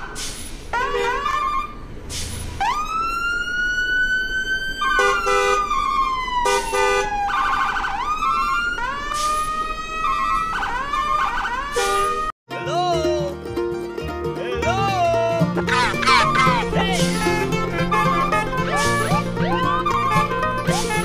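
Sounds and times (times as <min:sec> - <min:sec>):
electronic siren wailing: 0:02.6 - 0:12.3, 0:16.0 - 0:21.0.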